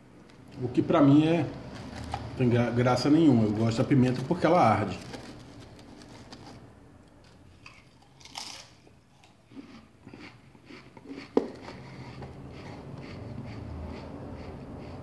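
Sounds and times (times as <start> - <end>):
crisps crunching: 1.7 - 2.6, 3.5 - 11.8
hand rustling in cardboard can: 3.6 - 6.7.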